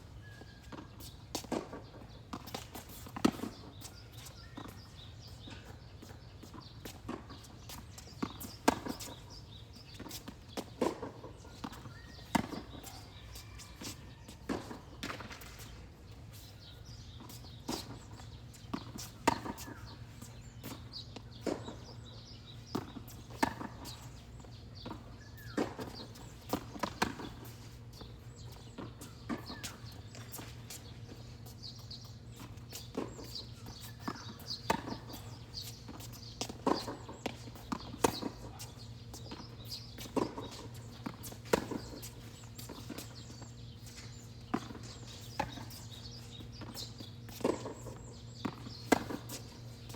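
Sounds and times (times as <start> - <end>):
tennis ball hit by rackets: 18.7 - 20.0, 32.8 - 43.1, 44.5 - 49.6.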